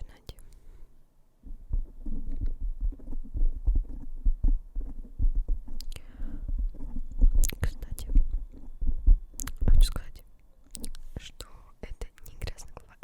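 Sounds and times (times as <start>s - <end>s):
fingers tapping on microphone: 1.5s - 10.1s.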